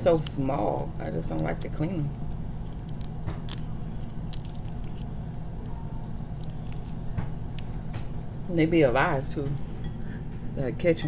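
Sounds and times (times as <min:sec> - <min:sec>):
steady low hum: 0:00.0 - 0:11.0
wet chewing and mouth sounds: 0:01.0 - 0:08.1
sharp clicks and crunches: 0:01.1 - 0:08.1.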